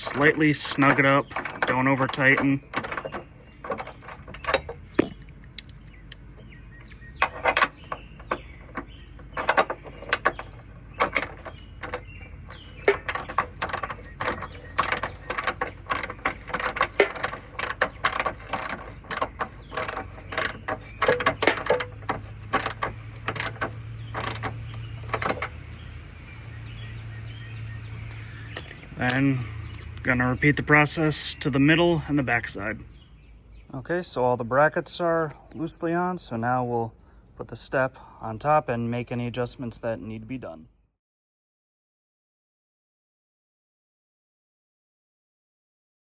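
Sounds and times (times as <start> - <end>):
socket ratchet clicking: 0.0 - 6.2, 6.8 - 25.8.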